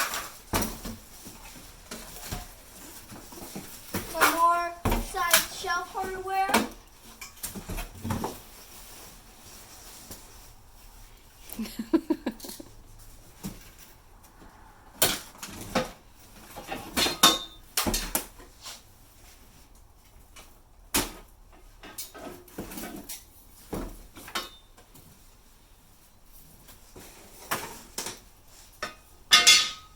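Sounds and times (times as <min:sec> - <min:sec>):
metal grill parts clinking: 0:28.8 - 0:29.9.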